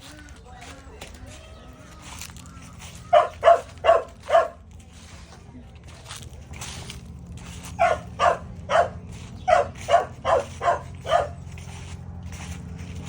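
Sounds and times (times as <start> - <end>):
dog barking: 3.1 - 4.6, 7.8 - 11.4.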